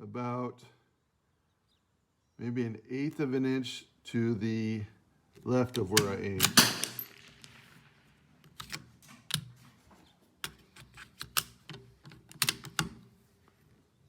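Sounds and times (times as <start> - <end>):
rifle bolt clicks and knocks: 5.4 - 7.5, 8.5 - 9.6, 10.4 - 13.1.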